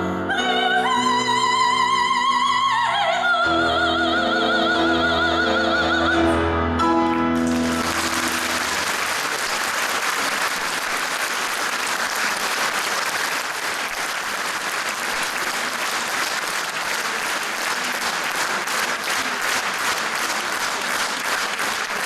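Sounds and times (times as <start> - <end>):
audience applauding: 7.1 - 22.0
rhythmic clapping: 7.1 - 22.0.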